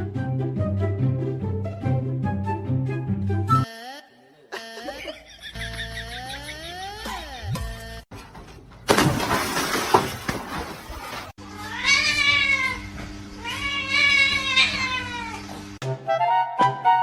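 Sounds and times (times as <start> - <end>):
cat meowing: 11.6 - 15.4.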